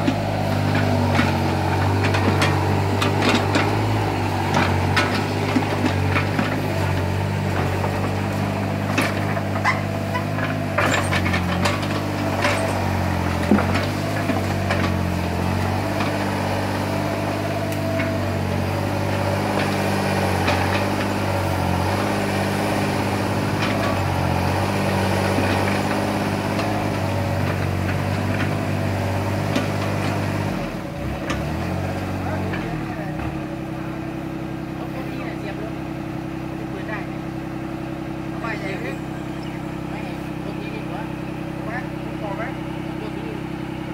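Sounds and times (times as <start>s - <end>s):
excavator engine running: 0.0s - 43.9s.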